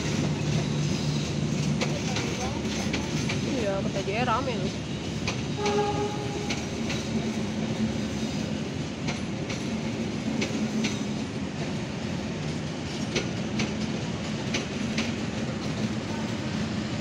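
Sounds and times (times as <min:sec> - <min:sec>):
train carriages rumbling past: 0:00.0 - 0:17.0
wheels clicking over rail joints: 0:00.1 - 0:08.0.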